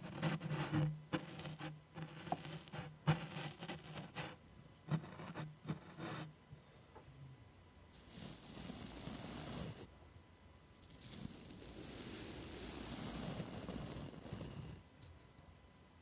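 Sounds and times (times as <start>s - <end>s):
scratching and rubbing on surface: 0.0s - 6.3s, 8.0s - 9.9s, 10.8s - 14.8s.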